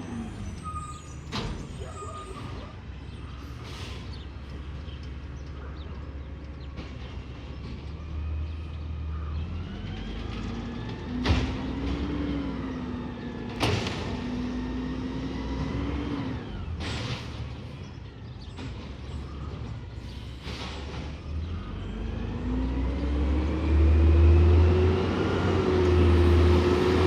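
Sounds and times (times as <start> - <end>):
garbage truck engine revving: 9.4 - 17.4, 20.5 - 27.0.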